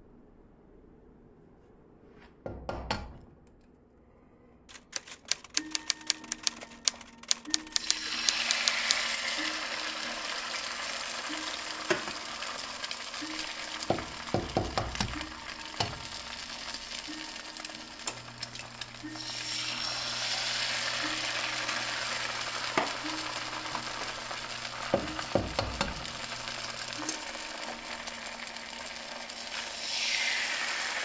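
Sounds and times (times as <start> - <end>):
hot oil crackling and popping: 7.5 - 31.0
egg sizzling in a pan: 7.7 - 31.0
egg tapped on a pan: 13.8 - 16.1, 24.8 - 26.2.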